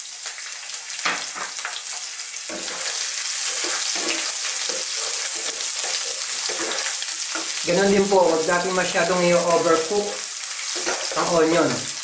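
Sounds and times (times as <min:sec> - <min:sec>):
onions sizzling in hot oil: 0:00.0 - 0:12.0
wooden spoon scraping a pan: 0:02.5 - 0:07.6, 0:10.2 - 0:11.9.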